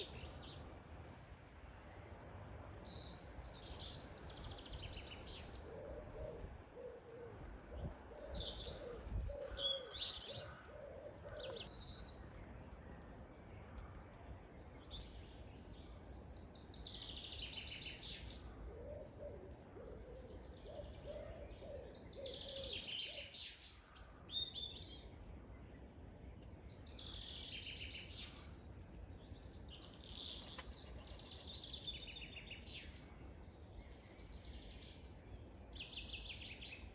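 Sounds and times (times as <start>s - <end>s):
bird hooting call: 5.6s - 7.4s, 8.2s - 11.7s, 18.6s - 23.3s
birds singing and chirping: 6.8s - 12.4s, 14.9s - 25.2s.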